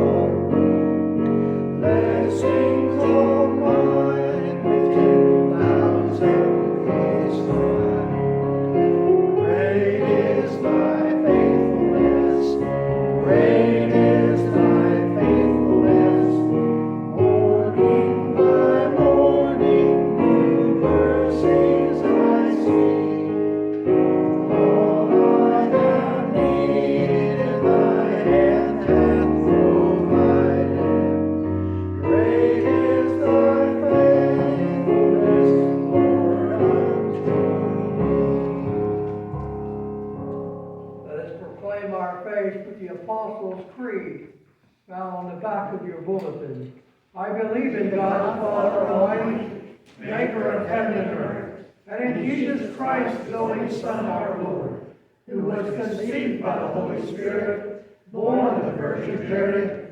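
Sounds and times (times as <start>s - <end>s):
voices singing a hymn: 0.0s - 39.8s, 47.2s - 59.9s
piano accompaniment: 0.0s - 42.0s.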